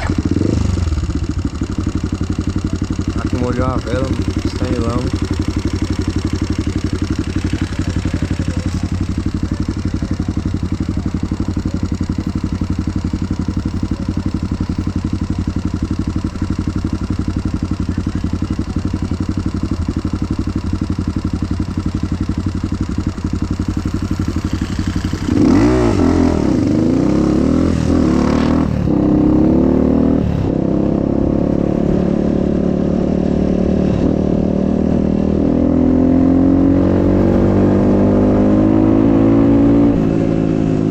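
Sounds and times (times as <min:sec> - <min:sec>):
dirt bike engine idling and revving: 0:00.0 - 0:40.9
person talking: 0:03.1 - 0:05.3.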